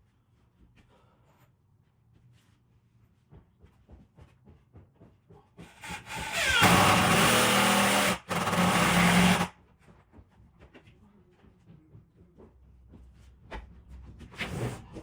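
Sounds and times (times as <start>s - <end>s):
power tool motor whining: 5.8s - 9.5s.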